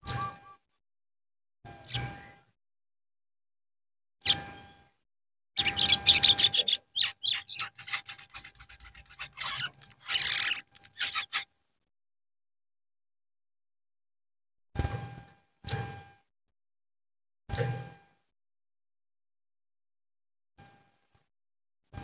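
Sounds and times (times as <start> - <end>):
bird rasping chatter calls: 5.6 - 11.5.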